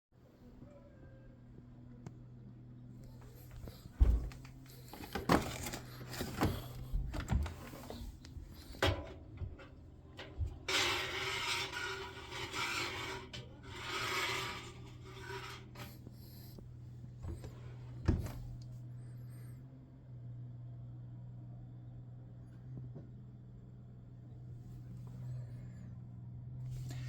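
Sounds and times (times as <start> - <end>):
washing machine knocks and clatter: 3.6 - 9.6, 18.0 - 18.6
rubbing scraping noise: 10.5 - 16.6.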